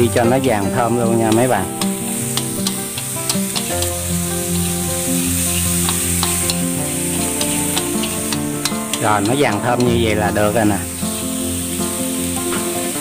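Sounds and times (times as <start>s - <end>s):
aromatics sizzling in oil: 0.0s - 13.0s
background music with sustained notes: 0.0s - 13.0s
chopsticks clicking against pan: 1.3s - 4.0s, 5.8s - 10.4s.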